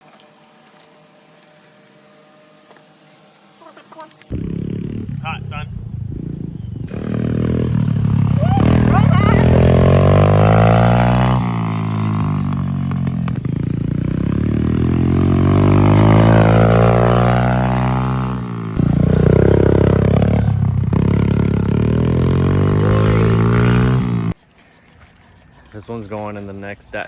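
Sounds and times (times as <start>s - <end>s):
vehicle engine droning: 4.3s - 24.4s.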